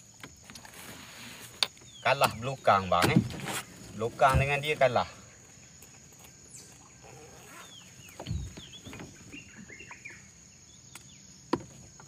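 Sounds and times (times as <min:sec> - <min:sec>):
high insect buzz: 0:00.0 - 0:12.0
bird chirping calls: 0:01.8 - 0:11.4.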